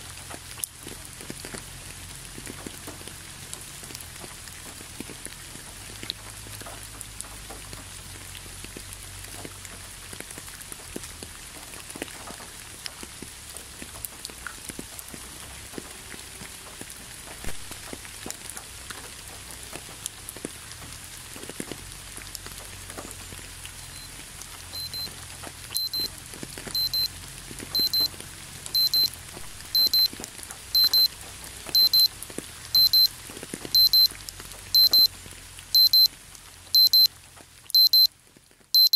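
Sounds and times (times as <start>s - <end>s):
steady rain falling: 0.0s - 38.8s
electronic alarm beeping: 24.8s - 25.1s, 25.7s - 26.1s, 26.8s - 27.1s, 27.7s - 28.1s, 28.7s - 30.1s, 30.8s - 31.1s, 31.8s - 32.1s, 32.8s - 33.1s, 33.8s - 34.1s, 34.7s - 35.1s, 35.8s - 36.1s, 36.8s - 37.1s, 37.8s - 38.1s
drops ticking: 25.7s - 26.1s, 26.7s - 27.1s, 27.7s - 35.1s, 35.8s - 36.1s, 37.7s - 38.1s.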